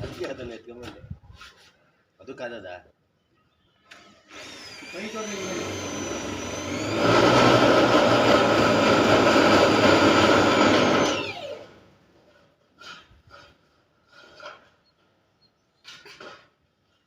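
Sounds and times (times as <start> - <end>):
power tool whining and spinning down: 3.9 - 12.0.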